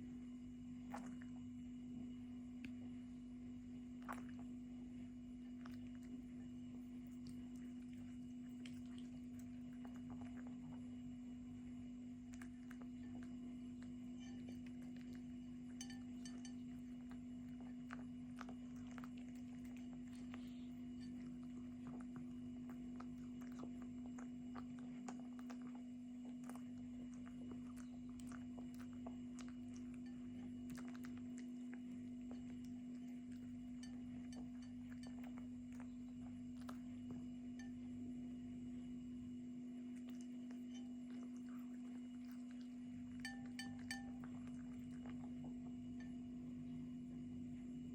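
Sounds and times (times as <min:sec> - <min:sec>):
cat chewing: 0:00.0 - 0:47.9
steady low hum: 0:00.0 - 0:47.9.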